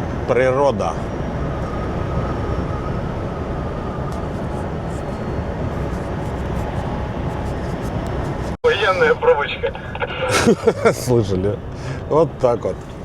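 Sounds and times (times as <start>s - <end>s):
truck engine and road noise: 0.0s - 13.0s
faint thin tone: 4.1s - 7.9s.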